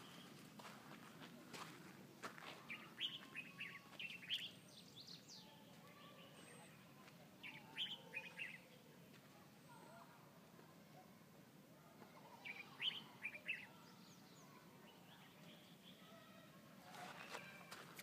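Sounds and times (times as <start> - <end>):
faint small bird chirping: 2.6 - 8.8, 12.1 - 17.7.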